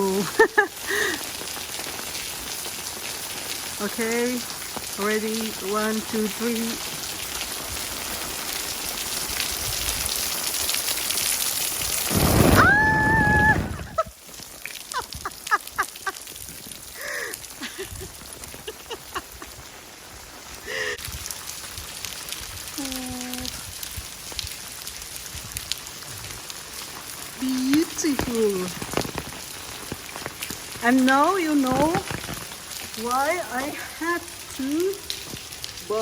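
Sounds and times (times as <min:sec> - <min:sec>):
drips and patter: 0:00.0 - 0:36.0
heavy rain pouring: 0:00.0 - 0:36.0
high-pitched cry: 0:12.6 - 0:14.1.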